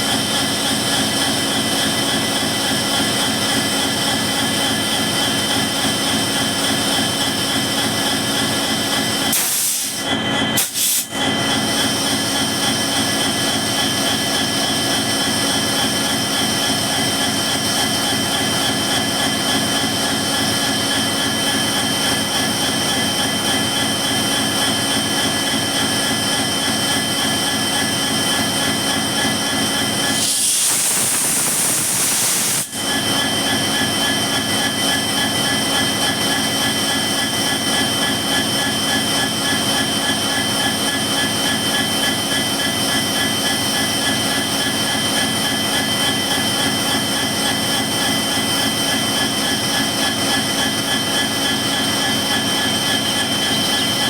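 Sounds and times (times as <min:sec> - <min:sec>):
diesel locomotive engine running: 0:00.0 - 0:54.0
turbocharger whine: 0:00.0 - 0:54.0
loud high hiss: 0:30.2 - 0:32.7.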